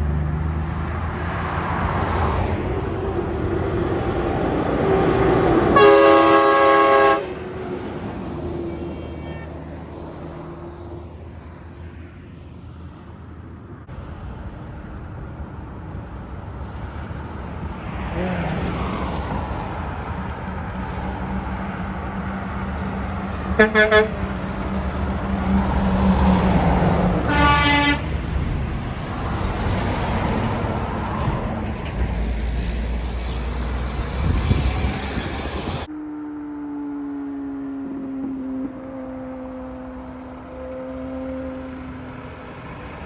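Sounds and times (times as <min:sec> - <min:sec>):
road traffic passing: 0:00.0 - 0:43.0
truck air horn: 0:04.8 - 0:09.5, 0:23.5 - 0:24.6, 0:27.0 - 0:28.2.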